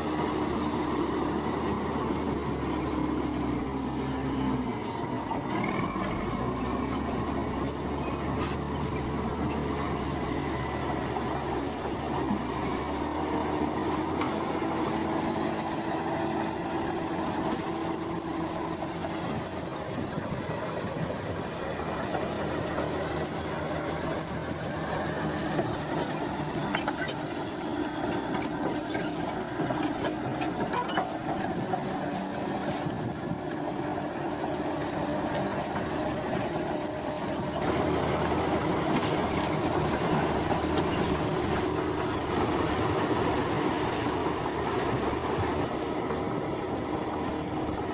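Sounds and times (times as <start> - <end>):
diesel engine running: 0.0 - 47.9
metallic squeal of tracks: 3.1 - 47.9
steel tracks clanking: 11.0 - 47.9.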